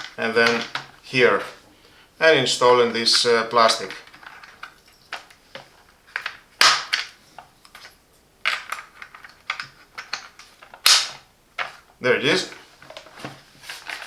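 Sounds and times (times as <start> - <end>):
plastic snaps: 3.9 - 7.9, 8.5 - 11.8.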